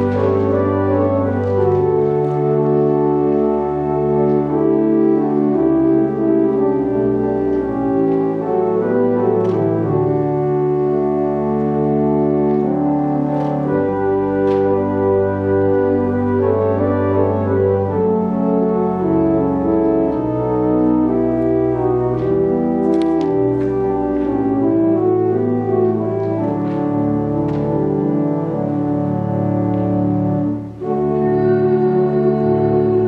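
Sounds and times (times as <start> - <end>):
church organ chords: 0.0 - 33.0.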